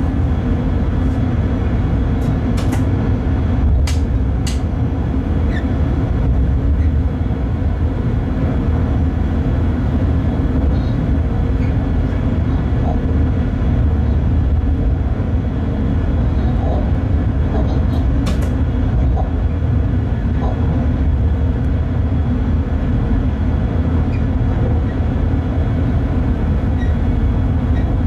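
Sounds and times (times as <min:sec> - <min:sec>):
electric locomotive rumble: 0:00.0 - 0:28.0
sharp click: 0:03.9 - 0:04.7.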